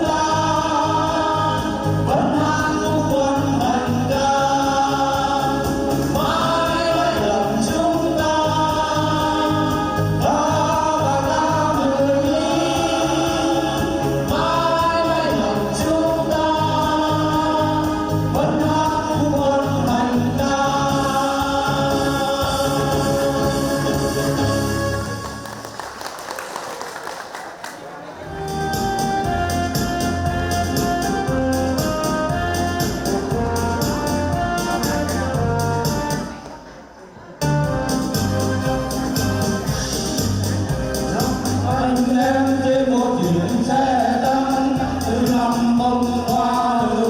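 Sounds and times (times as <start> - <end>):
music with steady beat: 0.0 - 26.6, 28.4 - 36.6, 37.4 - 47.0
choir singing: 3.9 - 17.3.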